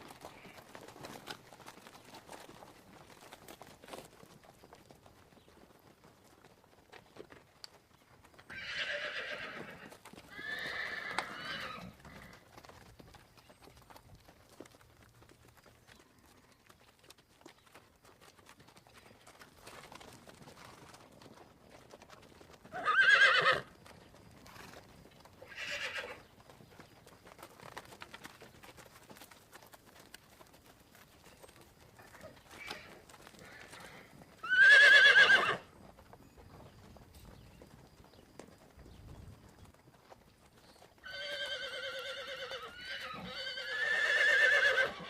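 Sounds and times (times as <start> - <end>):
horse whinnying: 8.5 - 12.4, 22.7 - 23.7, 25.4 - 26.2, 32.6 - 35.7, 41.0 - 45.0.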